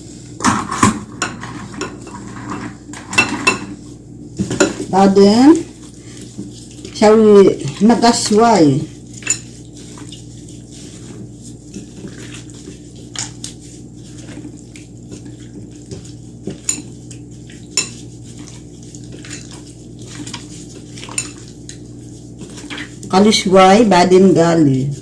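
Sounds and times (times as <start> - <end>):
steady low hum: 0.0 - 25.0
utensils clinking against dishes: 0.4 - 3.8, 9.2 - 9.6, 16.5 - 17.0, 17.7 - 18.0, 19.1 - 20.4, 21.0 - 21.5.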